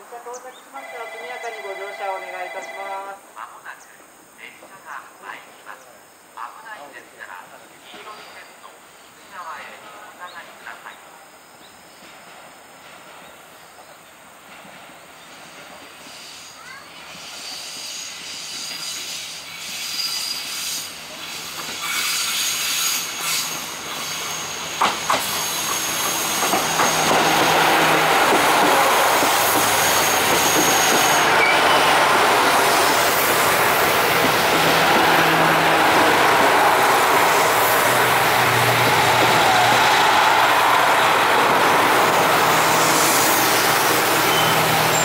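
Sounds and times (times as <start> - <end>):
train wheels rumbling on rails: 12.0 - 45.0
high wheel squeal: 17.2 - 27.6, 28.5 - 32.1, 38.7 - 45.0.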